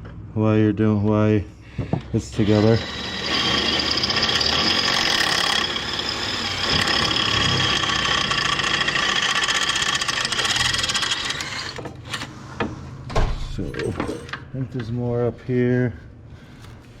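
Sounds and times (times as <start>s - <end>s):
power drill drilling into metal: 2.4s - 12.3s.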